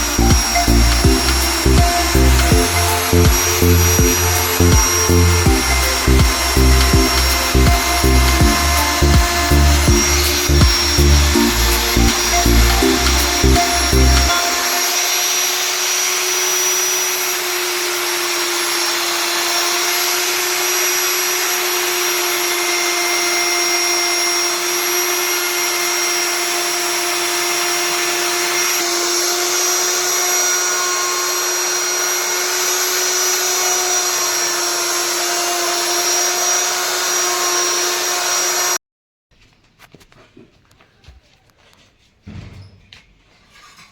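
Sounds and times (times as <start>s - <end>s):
loud hiss: 0.0s - 17.0s
power tool motor whining: 0.0s - 38.8s.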